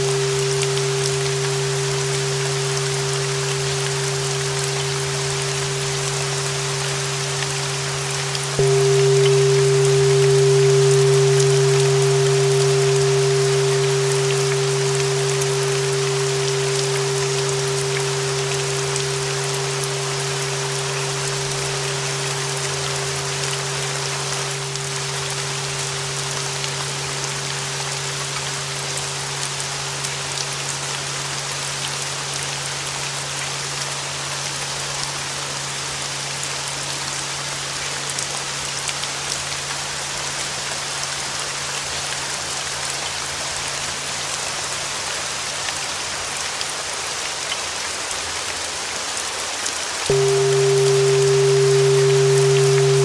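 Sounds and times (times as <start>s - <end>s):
low hum: 0.0s - 31.1s, 50.1s - 53.0s
sustained bell tone: 0.0s - 32.4s, 50.1s - 53.0s
steady rain: 0.0s - 53.0s.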